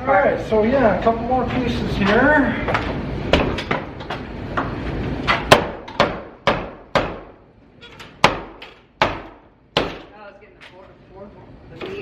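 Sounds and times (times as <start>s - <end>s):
hammer knocking wooden planks: 5.5s - 7.3s, 8.2s - 10.1s.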